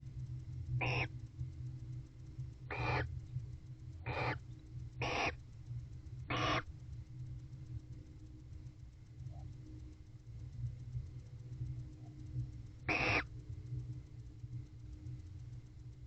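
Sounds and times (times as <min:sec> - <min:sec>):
barn owl screeching: 0:00.8 - 0:01.1, 0:02.7 - 0:03.1, 0:04.0 - 0:04.4, 0:05.0 - 0:05.4, 0:06.3 - 0:06.7, 0:12.9 - 0:13.3.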